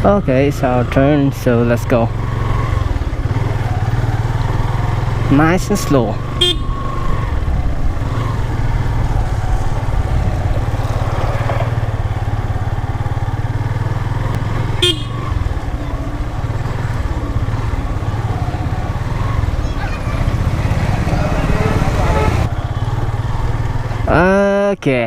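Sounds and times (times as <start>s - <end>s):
motorcycle engine running: 0.0s - 24.5s
vehicle horn beep: 6.3s - 7.2s, 14.6s - 15.5s, 21.4s - 23.0s.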